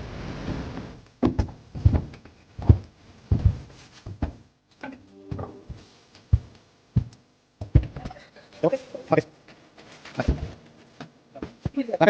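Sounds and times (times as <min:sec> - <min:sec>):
heavy thuds and knocks: 0:00.5 - 0:04.5, 0:05.3 - 0:08.2, 0:10.2 - 0:10.6.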